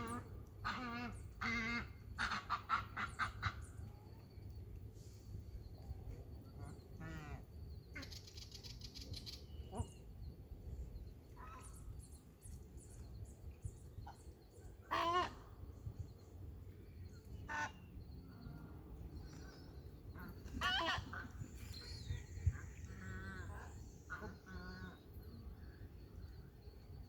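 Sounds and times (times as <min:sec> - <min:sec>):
bird calls: 0:06.6 - 0:10.2, 0:11.3 - 0:27.0
low background rumble: 0:09.4 - 0:27.0.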